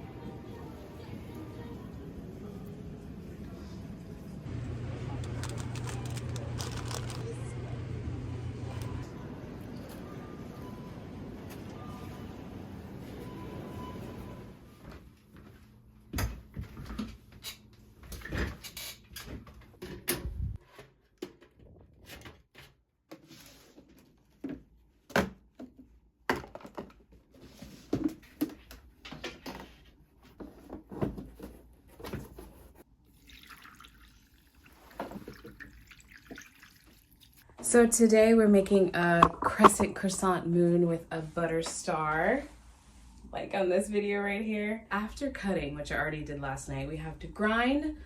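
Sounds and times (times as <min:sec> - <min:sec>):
objects clicking and knocking: 0:39.2 - 0:40.0.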